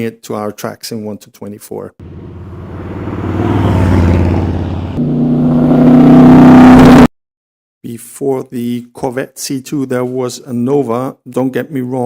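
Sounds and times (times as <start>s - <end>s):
race car engine accelerating: 2.0s - 7.1s.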